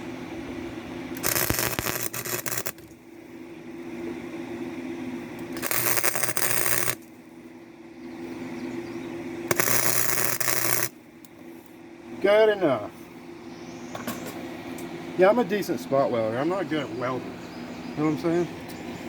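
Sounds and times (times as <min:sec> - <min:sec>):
welder crackling: 0:00.0 - 0:12.8
steady low hum: 0:00.0 - 0:19.0.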